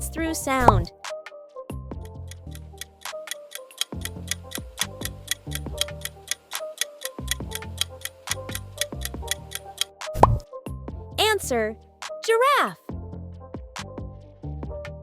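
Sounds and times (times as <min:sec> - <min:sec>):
background music with low bass: 0:00.0 - 0:12.2, 0:12.9 - 0:15.0
clock ticking: 0:02.0 - 0:09.9.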